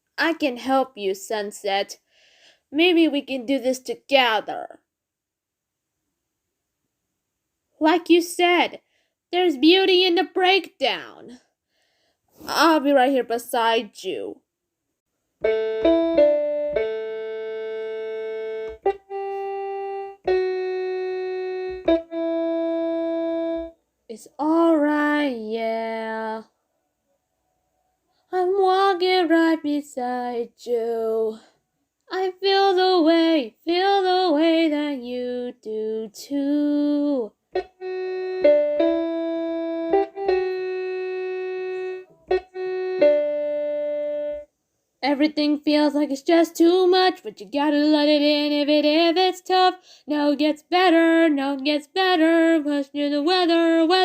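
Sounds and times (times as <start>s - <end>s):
electronic keyboard chords: 15.4s - 23.8s, 37.6s - 44.5s.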